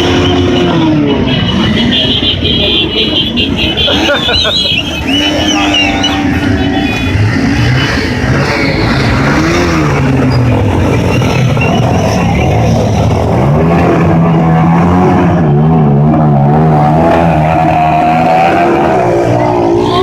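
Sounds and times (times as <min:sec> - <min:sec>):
motorcycle engine revving: 0:05.0 - 0:20.0.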